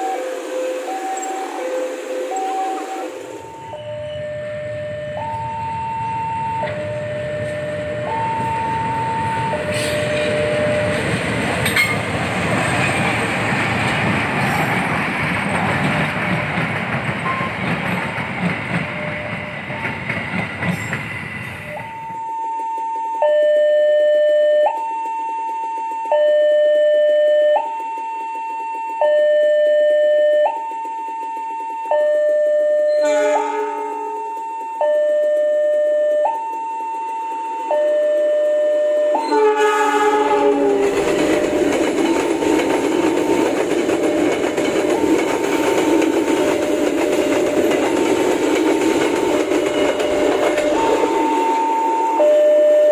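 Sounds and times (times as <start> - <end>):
two-tone crossing alarm: 0.0 - 13.0, 20.6 - 52.9
locomotive rumble: 0.0 - 21.7, 39.3 - 52.3
train wheel clacks: 5.2 - 23.0, 30.2 - 52.9.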